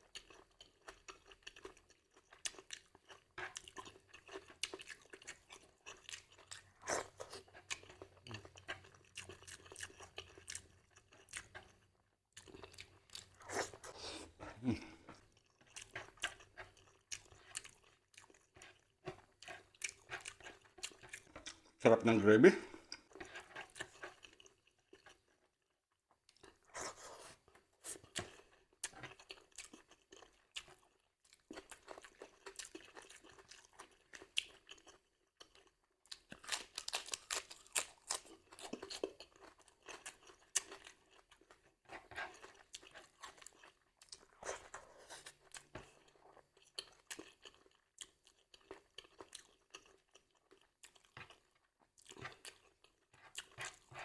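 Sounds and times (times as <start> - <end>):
person chewing crunchy food: 0.0 - 21.8, 22.6 - 54.0.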